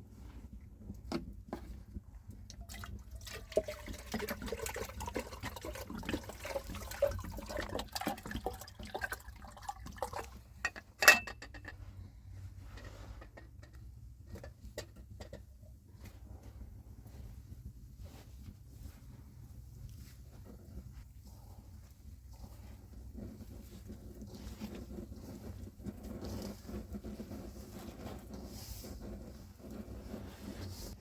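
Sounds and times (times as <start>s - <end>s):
water sloshing and splashing: 2.5s - 10.6s.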